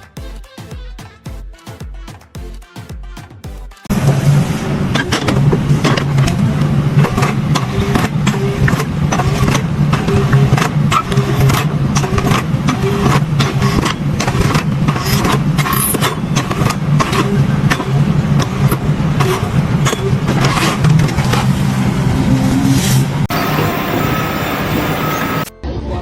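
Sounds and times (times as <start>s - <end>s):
engine running: 3.9s - 25.5s
sharp clacks and knocks: 7.0s - 21.5s.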